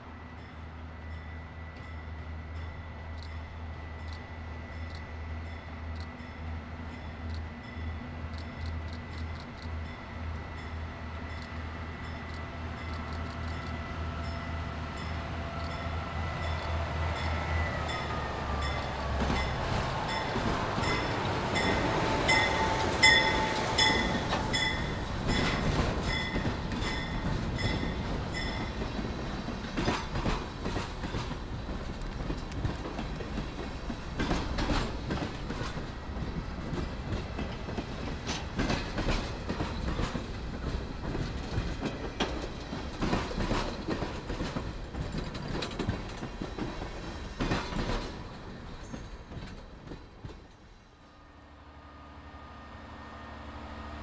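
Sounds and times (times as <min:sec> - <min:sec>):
locomotive engine humming: 0:00.0 - 0:49.9
freight cars rumbling: 0:14.7 - 0:50.5
wheels clicking over rail joints: 0:18.6 - 0:50.7.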